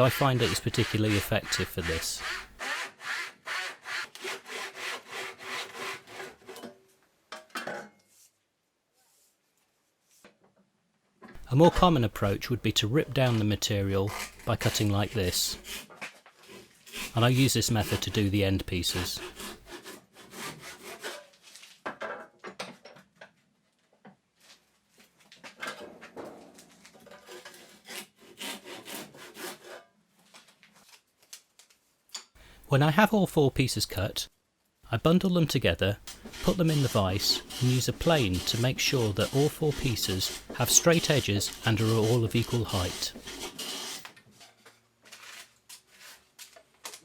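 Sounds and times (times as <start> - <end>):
hand saw cutting plywood: 0.0 - 6.7, 11.4 - 21.4, 27.0 - 29.8, 35.7 - 44.2.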